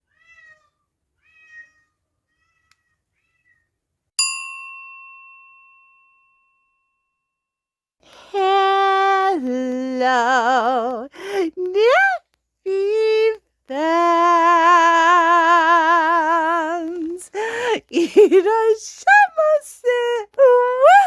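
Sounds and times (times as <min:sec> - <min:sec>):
cat meowing: 0:00.0 - 0:03.7
bell ding: 0:04.2 - 0:07.3.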